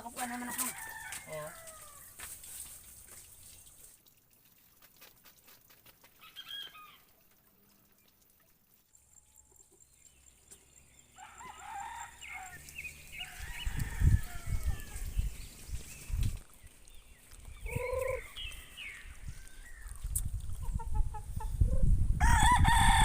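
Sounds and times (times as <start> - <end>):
rooster crowing: 0.4 - 2.1, 11.2 - 15.0, 22.2 - 23.0.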